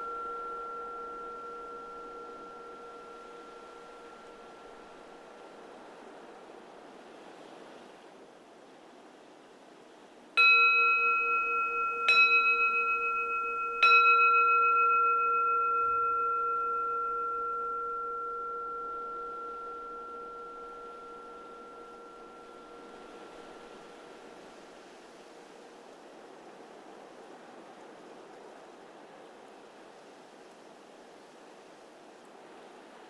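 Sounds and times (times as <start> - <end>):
temple bowl bell ringing: 0.0 - 6.2, 10.4 - 24.5
soft wind hiss: 0.0 - 33.0.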